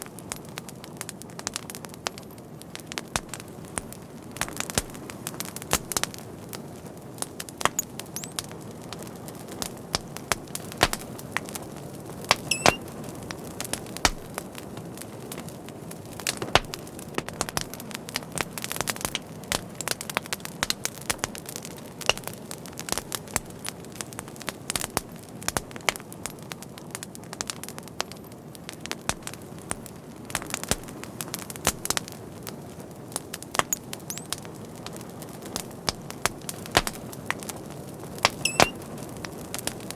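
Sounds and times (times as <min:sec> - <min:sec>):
wood fire popping: 0:00.0 - 0:39.9
high whistling squeak: 0:12.5 - 0:12.8, 0:38.4 - 0:38.8.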